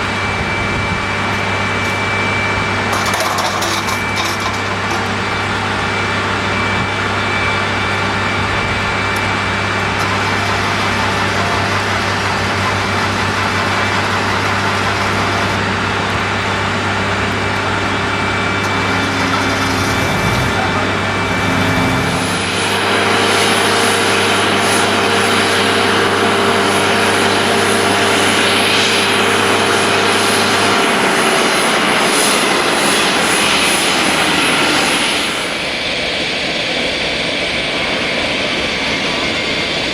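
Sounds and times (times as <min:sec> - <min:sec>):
low hum: 0:00.0 - 0:31.6
high engine whine: 0:00.0 - 0:39.9
jet engines running: 0:00.0 - 0:39.9.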